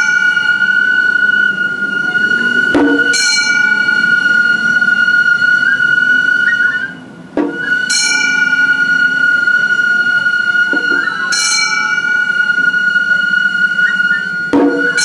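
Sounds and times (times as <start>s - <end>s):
festival flute high note: 0.0s - 15.0s
small hand gongs ringing: 0.0s - 15.0s
sharp struck drum beats: 2.6s - 4.2s, 7.3s - 9.6s, 10.6s - 12.8s, 14.4s - 15.0s.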